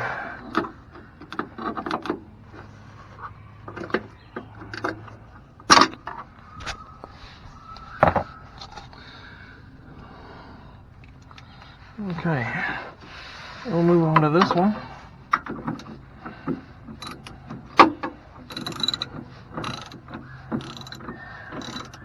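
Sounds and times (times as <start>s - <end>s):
tools clicking and knocking on metal: 0.4s - 6.3s, 14.0s - 22.0s.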